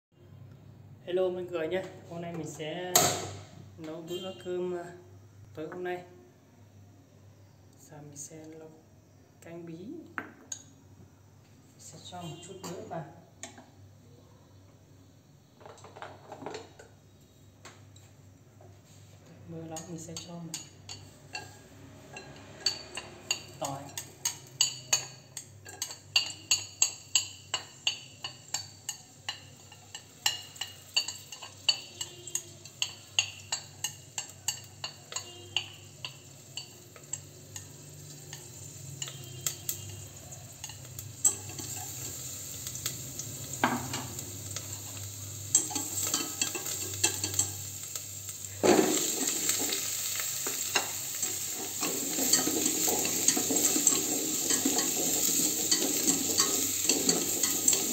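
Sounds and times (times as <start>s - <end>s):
food dropped into sizzling pot: 15.6s - 16.9s, 41.2s - 57.9s
garlic sizzling: 18.8s - 57.9s
utensil scraping metal pot: 43.6s - 47.7s, 48.9s - 57.9s.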